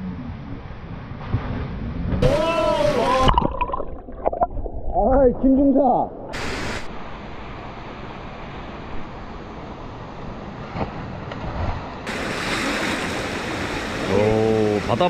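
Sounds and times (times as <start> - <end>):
stream water rushing and splashing: 6.3 - 9.8, 12.0 - 15.0.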